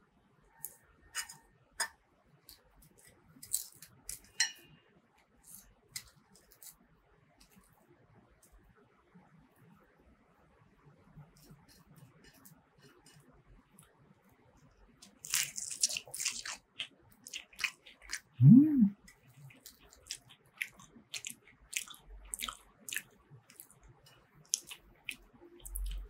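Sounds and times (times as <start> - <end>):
crunchy food chewing: 15.0 - 18.4, 19.1 - 26.0
wet mouth sounds: 17.3 - 19.0
person humming: 18.4 - 19.0.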